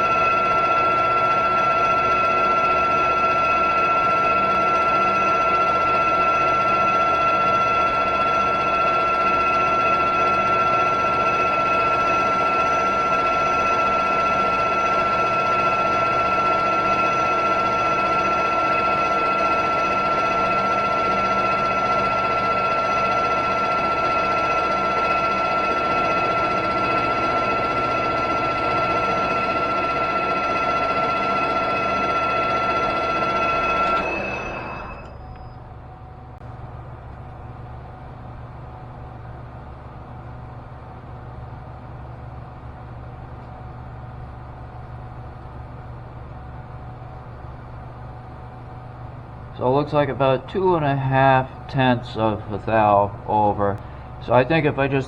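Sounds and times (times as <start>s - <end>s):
machine tool whining: 0.0s - 36.5s.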